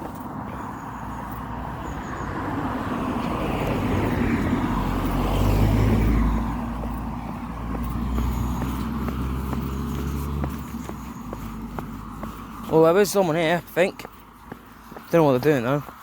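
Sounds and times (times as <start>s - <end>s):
car driving past: 1.4s - 12.3s.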